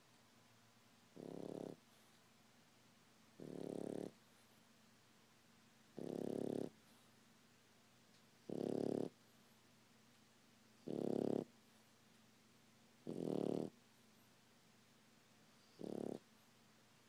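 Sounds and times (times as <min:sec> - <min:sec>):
puppy snoring: 0:01.1 - 0:02.1, 0:03.4 - 0:04.4, 0:05.9 - 0:07.0, 0:08.4 - 0:09.2, 0:10.8 - 0:11.6, 0:13.0 - 0:13.8, 0:15.5 - 0:16.3.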